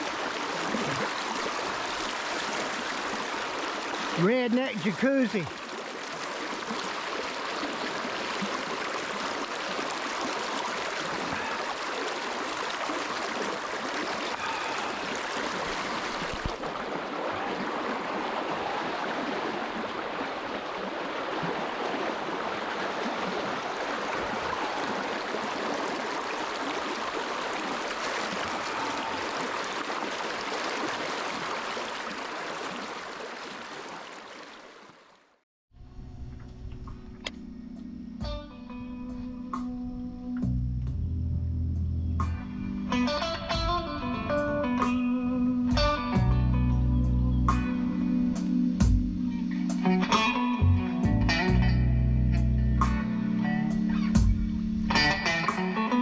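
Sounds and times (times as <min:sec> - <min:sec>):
river water rushing: 0:00.0 - 0:35.3.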